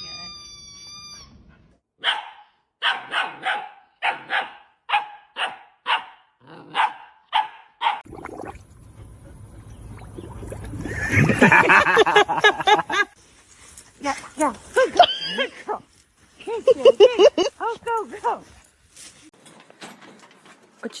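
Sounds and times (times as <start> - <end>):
wavering high-pitched cries: 0.0 - 1.5
dog barking: 2.0 - 8.0.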